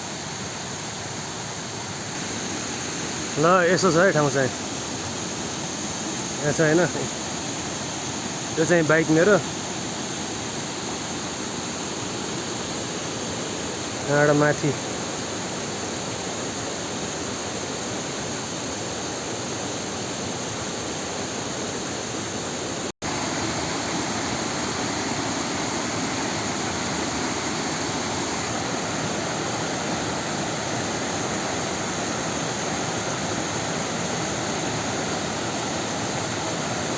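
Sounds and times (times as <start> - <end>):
waterfall rushing: 2.2 - 36.9.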